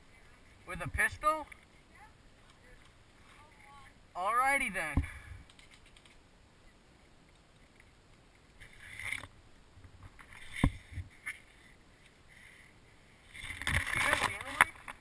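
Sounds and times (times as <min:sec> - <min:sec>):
brief rustle: 0:05.4 - 0:06.2, 0:13.3 - 0:15.0
small clicks: 0:05.4 - 0:06.2.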